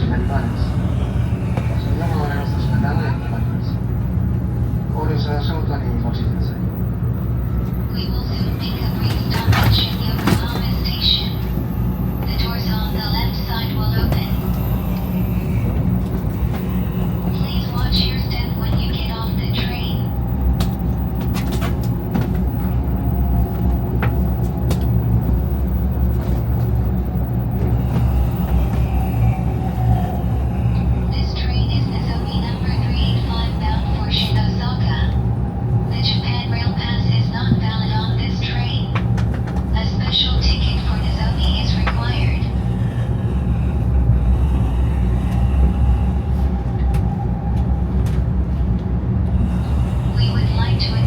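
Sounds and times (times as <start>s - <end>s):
train running rumble: 0.0s - 51.0s.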